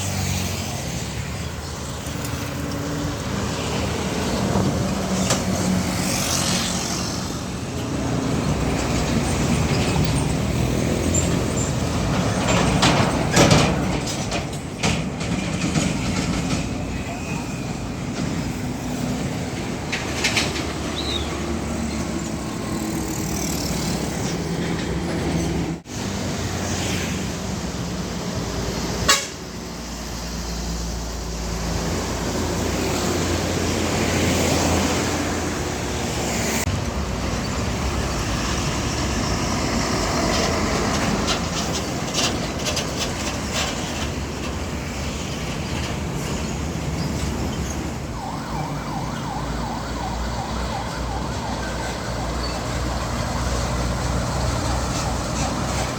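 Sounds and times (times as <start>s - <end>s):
diesel trucks passing: 0.0s - 55.9s.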